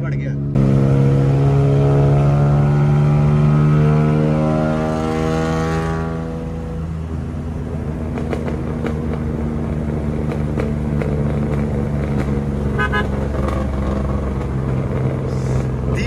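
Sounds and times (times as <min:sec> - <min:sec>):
car engine running: 0:00.0 - 0:16.0
pulsing car horn toot: 0:12.7 - 0:13.2.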